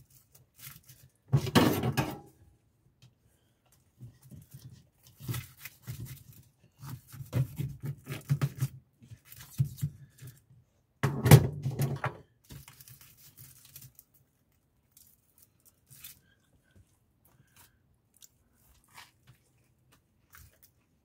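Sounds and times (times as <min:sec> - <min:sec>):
person biting and chewing food: 0:14.9 - 0:21.0.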